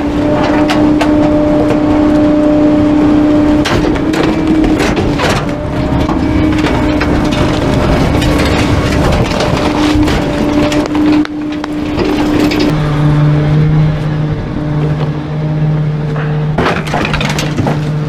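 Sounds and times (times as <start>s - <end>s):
garbage truck hydraulic whine: 0.0s - 16.6s
wood cracking and snapping: 3.6s - 12.7s, 16.6s - 18.0s.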